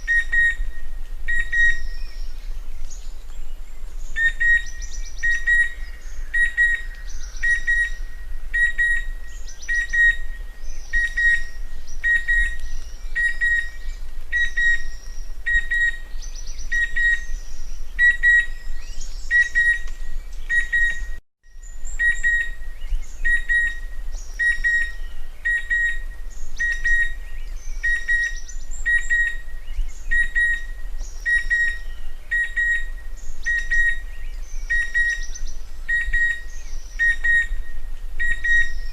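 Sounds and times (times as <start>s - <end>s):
cuckoo whistling call: 0.0s - 2.2s, 4.2s - 16.1s, 18.0s - 21.2s, 27.8s - 29.4s, 30.1s - 34.0s, 34.6s - 38.9s
other birds calling faintly: 0.0s - 38.9s.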